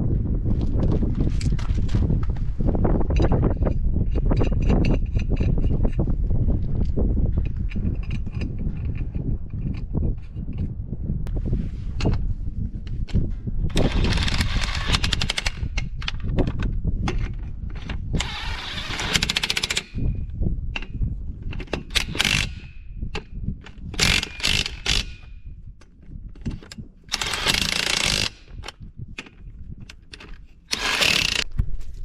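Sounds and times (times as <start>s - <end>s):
impact wrench hammering: 18.2s - 20.1s, 21.7s - 23.3s, 24.0s - 25.3s, 27.1s - 29.3s, 30.2s - 31.4s.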